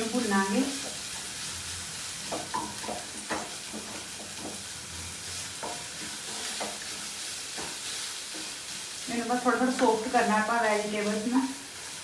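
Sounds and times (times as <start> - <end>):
onions sizzling in hot oil: 0.0 - 12.0
spatula scraping and stirring: 0.7 - 10.2.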